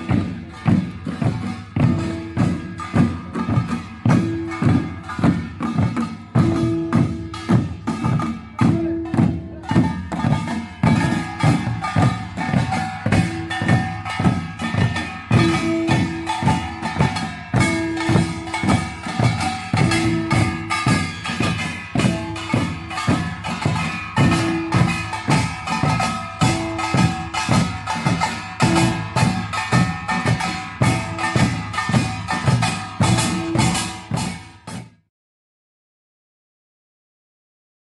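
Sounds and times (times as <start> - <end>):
drums beating: 0.0 - 35.0
small metal gongs clanging: 0.0 - 35.0.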